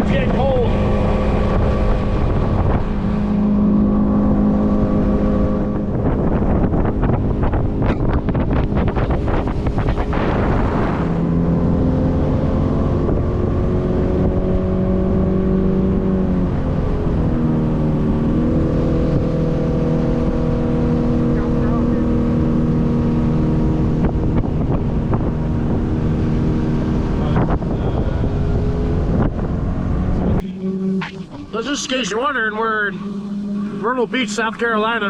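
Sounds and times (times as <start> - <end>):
boat motor running: 0.0 - 35.0
wind on microphone: 0.0 - 35.0.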